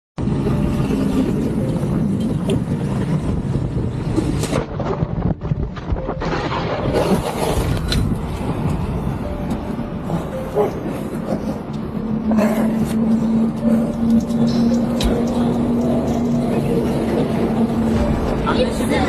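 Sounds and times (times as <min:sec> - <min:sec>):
road and wind noise: 0:00.2 - 0:19.0
vehicle engine running: 0:08.0 - 0:19.0
loud whoosh: 0:12.0 - 0:19.0.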